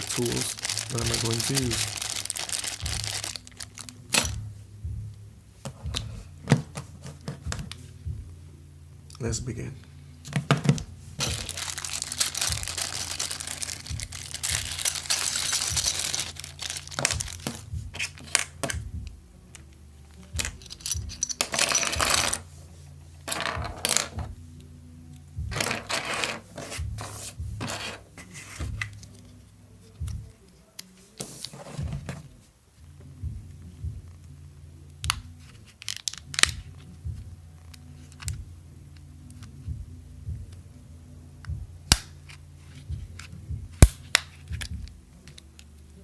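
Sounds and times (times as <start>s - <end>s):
steady low hum: 2.8s - 6.5s, 7.4s - 18.0s
scraping and rustling: 11.2s - 18.4s.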